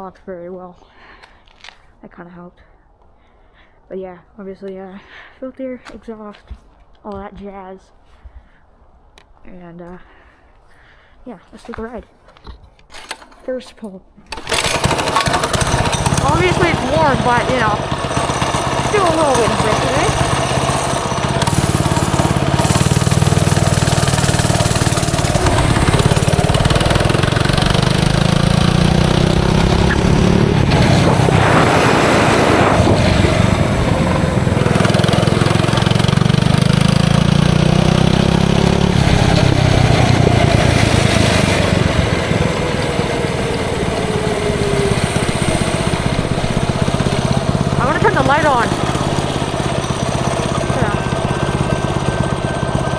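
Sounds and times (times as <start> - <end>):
minibike engine revving: 14.3 - 52.9
rush of noise: 15.8 - 36.1.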